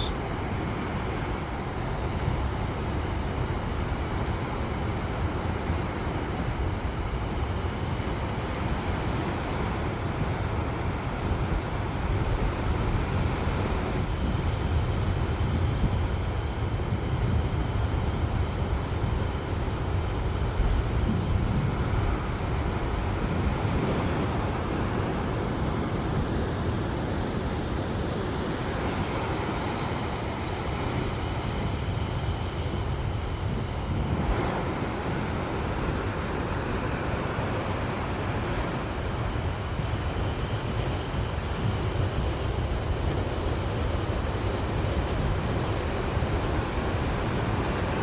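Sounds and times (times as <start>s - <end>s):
ocean surf breaking: 0.0s - 2.9s, 19.5s - 48.0s.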